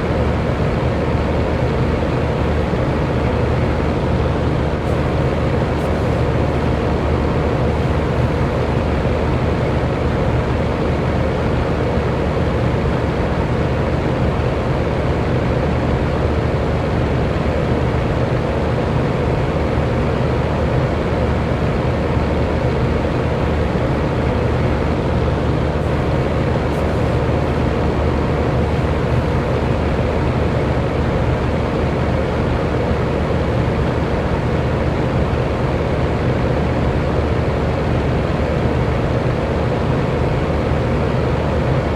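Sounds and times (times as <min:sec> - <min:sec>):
electric fan running: 0:00.0 - 0:41.9.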